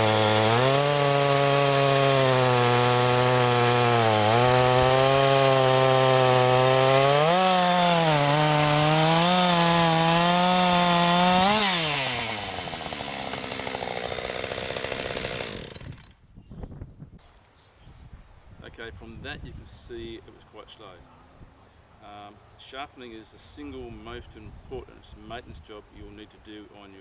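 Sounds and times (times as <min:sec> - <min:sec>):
chainsaw cutting through a log: 0:00.0 - 0:16.2.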